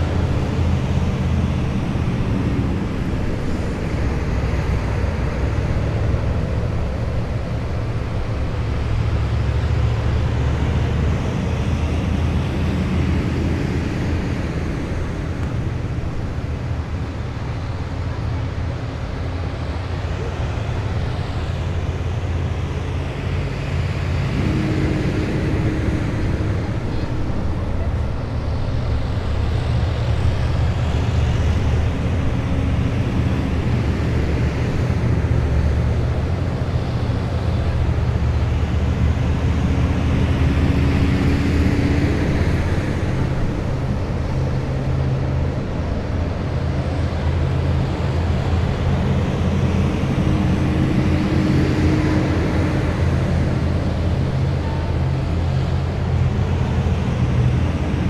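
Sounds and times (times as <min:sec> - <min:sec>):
high vehicle whine: 0:00.0 - 0:58.0
military vehicles driving past: 0:00.0 - 0:58.0.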